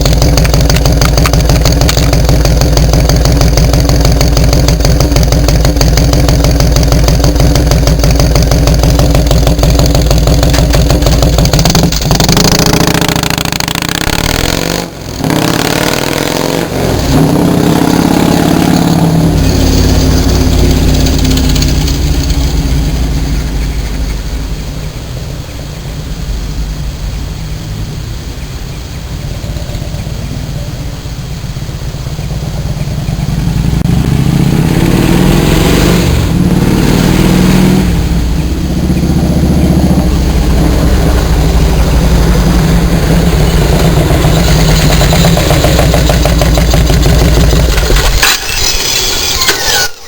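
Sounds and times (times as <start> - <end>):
motorcycle engine idling and revving: 0.0 - 49.8.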